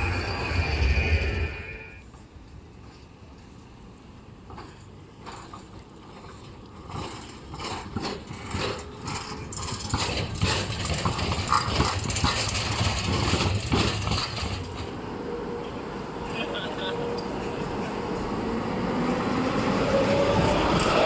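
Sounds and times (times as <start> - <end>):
tram rumble: 0.0 - 21.0
tram wheels clattering over rails: 4.4 - 21.0.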